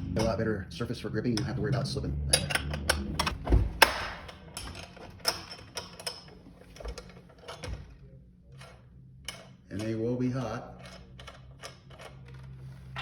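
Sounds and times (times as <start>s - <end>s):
metal tool clinking on nuts: 4.3s - 6.3s.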